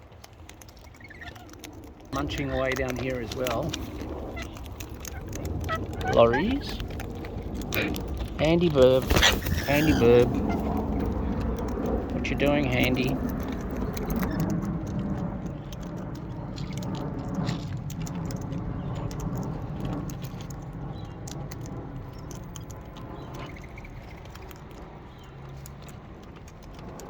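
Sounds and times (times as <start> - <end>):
low rustling rumble: 0.0 - 27.0
parrots cracking food: 0.0 - 27.0.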